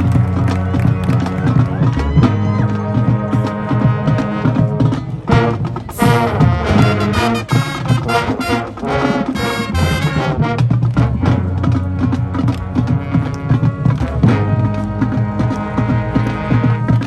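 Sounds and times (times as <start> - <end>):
drums: 0.0 - 17.0
marching band brass chords: 0.0 - 17.0
full-band hit: 3.2 - 10.6.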